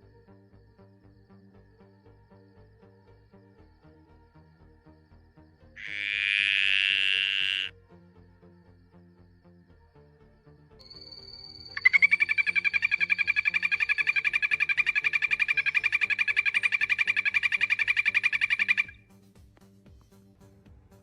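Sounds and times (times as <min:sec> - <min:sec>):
frog pulsing trill: 0:05.8 - 0:07.7, 0:10.8 - 0:19.0.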